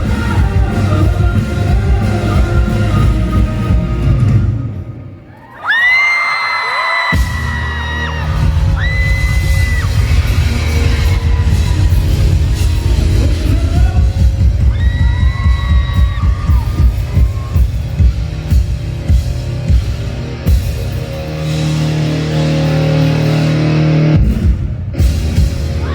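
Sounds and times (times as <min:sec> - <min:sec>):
live rock band playing: 0:00.0 - 0:05.1, 0:07.2 - 0:25.9
fans screaming: 0:05.2 - 0:18.0, 0:25.7 - 0:25.9.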